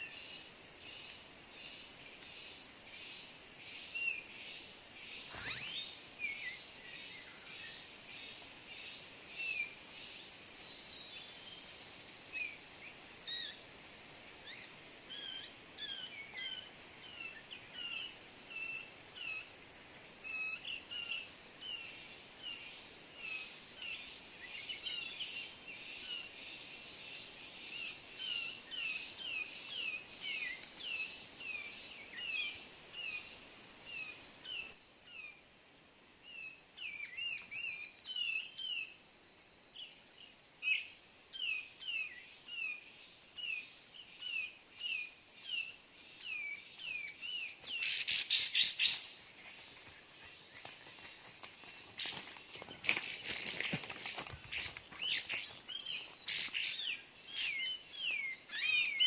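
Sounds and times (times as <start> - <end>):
bird chirping: 5.2 - 7.8, 52.0 - 59.0.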